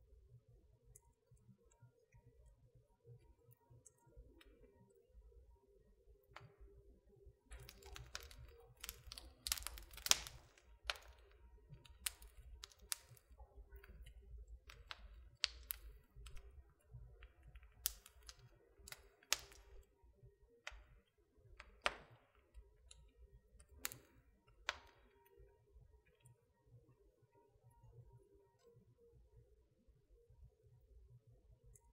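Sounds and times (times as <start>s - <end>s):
wood fire crackling: 7.5s - 19.9s, 20.6s - 25.4s.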